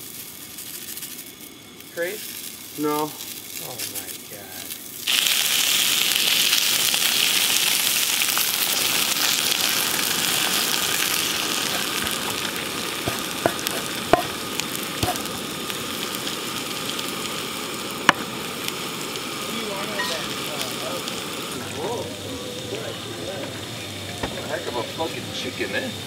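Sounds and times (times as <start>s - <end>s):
potatoes sizzling in skillet: 0.0s - 26.0s
sharp pops: 11.0s - 15.4s, 18.0s - 18.8s.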